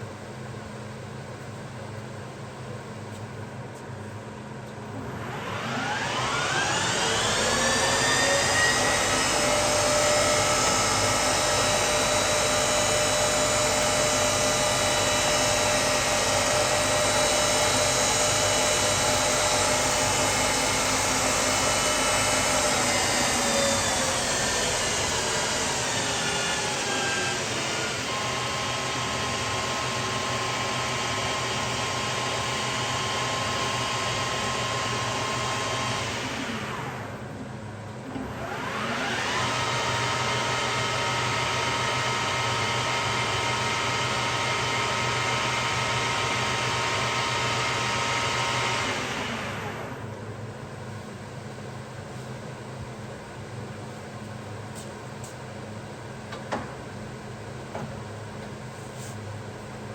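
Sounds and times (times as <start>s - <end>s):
metal lathe motor whining: 5.1s - 37.2s.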